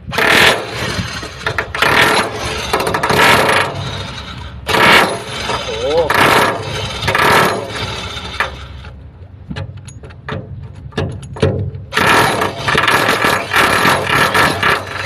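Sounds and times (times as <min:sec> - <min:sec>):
chipping hammer rattling on metal: 0:00.1 - 0:08.6, 0:10.2 - 0:15.0
knocks and clicks: 0:09.4 - 0:13.3.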